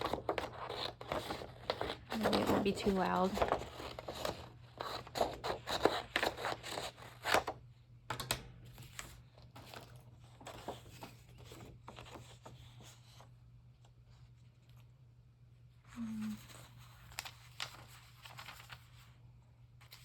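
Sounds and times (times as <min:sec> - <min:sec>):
paper rustling and tearing: 0:00.0 - 0:07.5, 0:08.7 - 0:13.1, 0:16.2 - 0:19.2.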